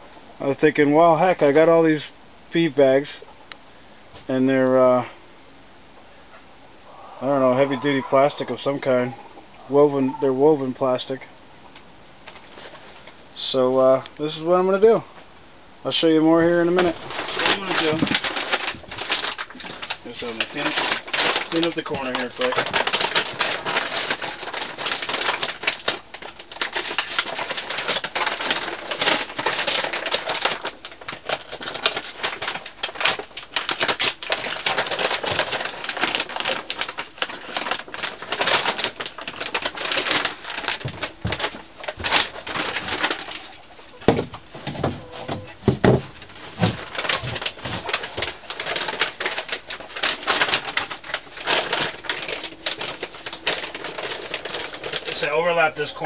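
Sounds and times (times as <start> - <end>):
rustling and crackling: 7.2 - 15.3, 15.9 - 56.0
dull knocks: 44.0 - 46.9.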